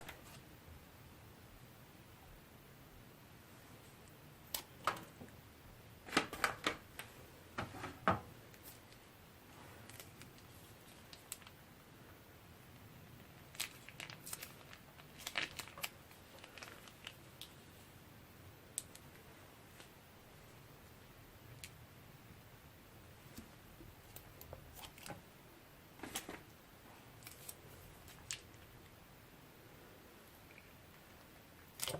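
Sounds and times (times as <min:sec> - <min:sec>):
plastic bags crinkling and clicking: 0:06.0 - 0:09.0, 0:09.8 - 0:11.6, 0:13.4 - 0:17.6, 0:24.1 - 0:25.3, 0:27.2 - 0:28.7, 0:31.6 - 0:31.9.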